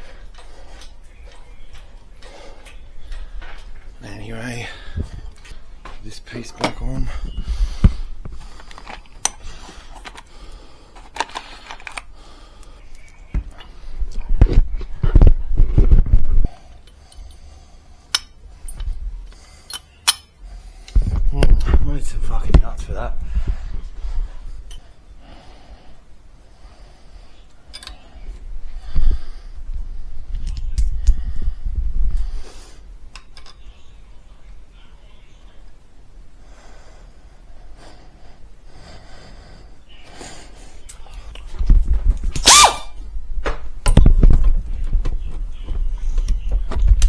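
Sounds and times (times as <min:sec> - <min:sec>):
man breathing heavily: 0:00.0 - 0:15.0, 0:16.4 - 0:21.8, 0:23.0 - 0:33.1, 0:36.2 - 0:42.0
tools clicking and knocking: 0:08.6 - 0:10.3, 0:11.0 - 0:12.1, 0:18.1 - 0:18.9, 0:19.7 - 0:20.3, 0:27.7 - 0:28.0
metallic clicks of tools: 0:19.7 - 0:20.3, 0:27.7 - 0:28.0.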